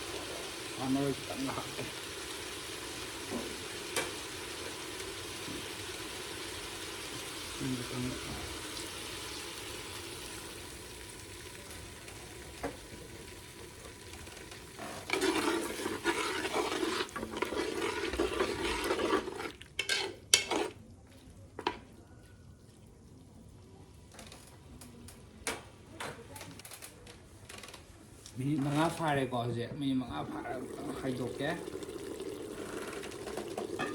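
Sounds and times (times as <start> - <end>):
meat sizzling in a pan: 0.0 - 19.3, 30.5 - 33.9
spatula stirring in a pan: 12.7 - 23.0.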